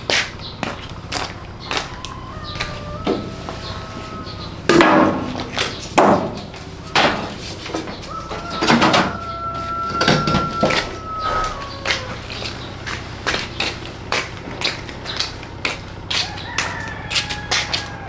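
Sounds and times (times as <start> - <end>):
sharp knocks: 4.7 - 12.1.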